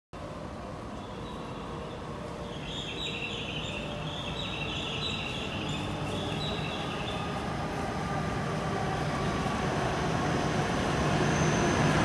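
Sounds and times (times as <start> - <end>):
low rumble of approaching train: 0.2 - 12.0
high chirping: 2.4 - 7.3.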